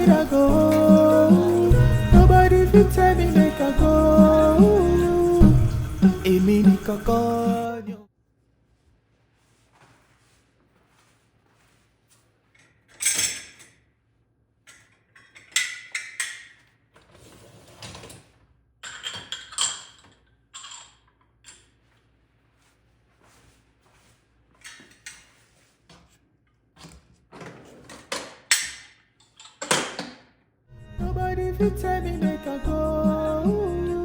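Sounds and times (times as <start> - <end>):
objects scraping and rubbing: 0.0 - 7.6, 8.7 - 13.2, 16.9 - 18.6, 20.0 - 28.1
objects clicking and knocking: 12.5 - 13.8, 14.6 - 17.2, 17.8 - 21.9, 26.8 - 30.3.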